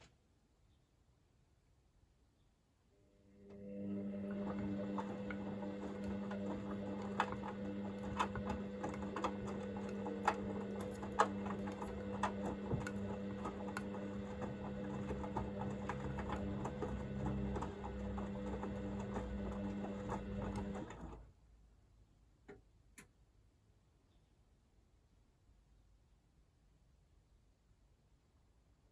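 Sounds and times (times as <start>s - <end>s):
washing machine motor hum: 3.1s - 21.3s.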